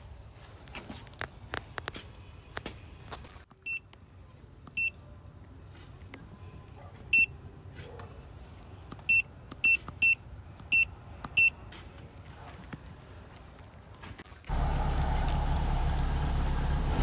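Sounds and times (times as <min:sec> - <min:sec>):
faint low hum: 0:14.5 - 0:17.0.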